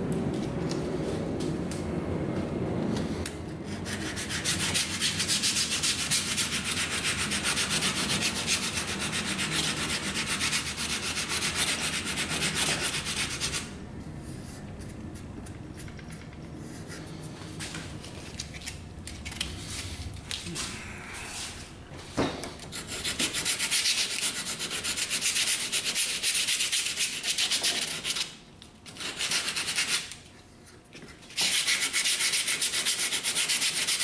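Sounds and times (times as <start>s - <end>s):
sandpaper rubbing on wood: 3.7s - 13.7s, 22.8s - 28.3s, 29.0s - 30.1s, 31.4s - 34.0s.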